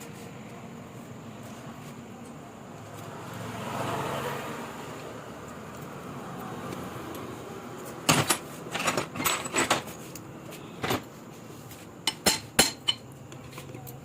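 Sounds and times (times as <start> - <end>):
hand tools clinking on metal: 8.0 - 10.2, 12.0 - 13.2.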